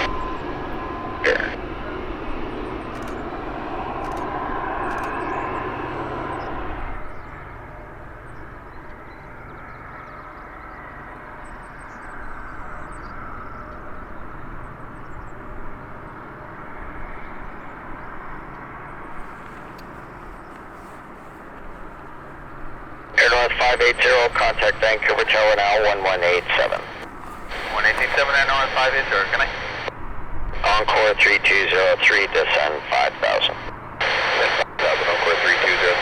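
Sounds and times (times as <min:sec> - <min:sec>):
jet engine rushing: 0:00.0 - 0:07.5, 0:19.0 - 0:29.9.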